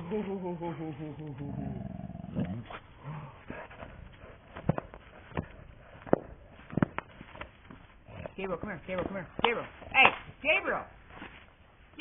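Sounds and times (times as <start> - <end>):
dog low vocal sound: 0.0 - 5.8.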